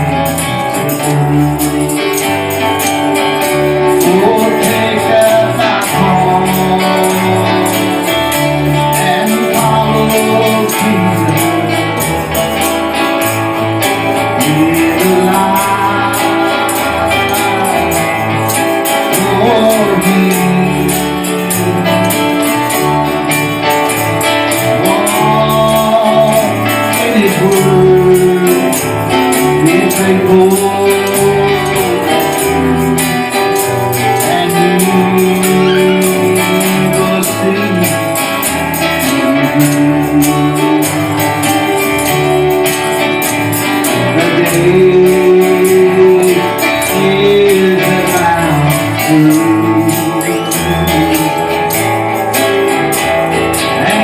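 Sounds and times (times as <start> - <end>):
tambourine beat: 0.0 - 54.0
voices singing gospel song: 3.7 - 12.6, 14.2 - 23.6, 44.0 - 52.3, 53.7 - 54.0.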